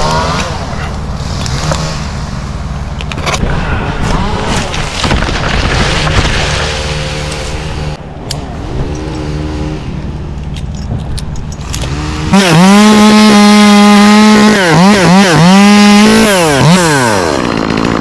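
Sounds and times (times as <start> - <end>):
chainsaw idling: 11.8 - 18.0.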